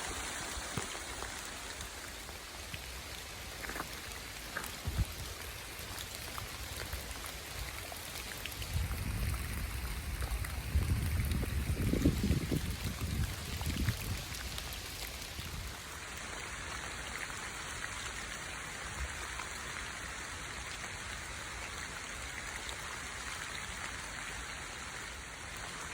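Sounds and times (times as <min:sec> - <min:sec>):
rain falling: 0:00.0 - 0:25.9.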